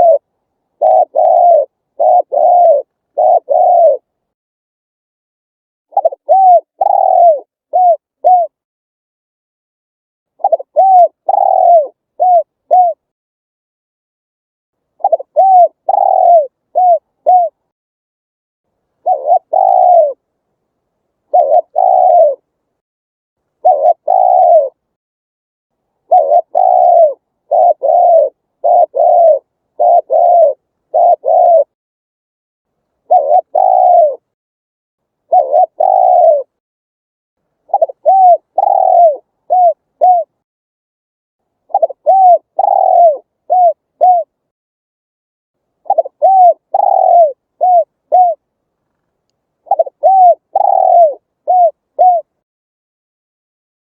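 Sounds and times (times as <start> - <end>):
dove cooing: 0.0 - 4.1, 5.9 - 8.6, 10.4 - 13.1, 15.0 - 17.7, 19.0 - 20.3, 21.3 - 22.5, 23.6 - 24.8, 26.0 - 31.8, 33.0 - 34.3, 35.2 - 36.6, 37.7 - 40.4, 41.7 - 44.4, 45.8 - 48.4, 49.6 - 52.4.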